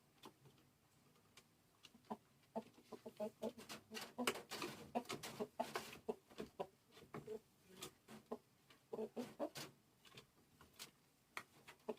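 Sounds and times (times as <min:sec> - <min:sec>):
chicken clucking: 0:01.2 - 0:10.2, 0:11.6 - 0:11.9.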